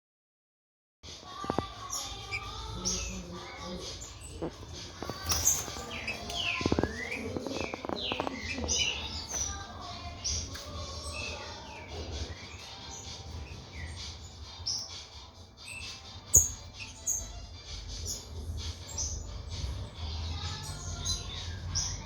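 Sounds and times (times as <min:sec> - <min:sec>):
bird singing whistled notes: 0:05.2 - 0:09.6, 0:15.6 - 0:17.4.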